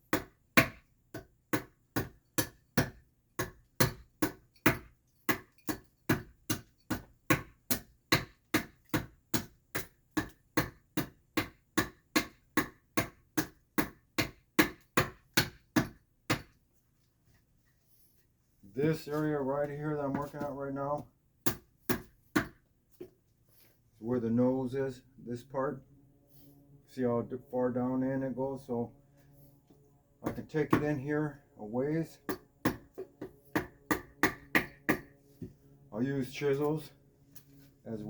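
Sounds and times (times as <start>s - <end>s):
hand adze chopping wood: 0.1s - 16.5s, 21.4s - 22.6s, 32.2s - 35.1s.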